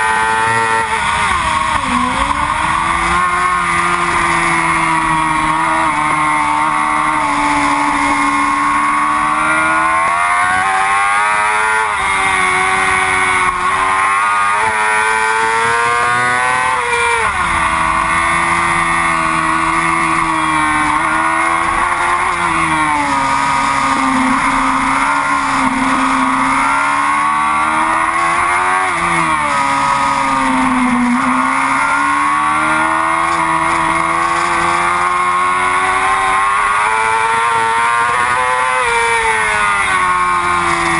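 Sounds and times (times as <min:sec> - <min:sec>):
motorcycle engine at high revs: 0:00.0 - 0:40.9.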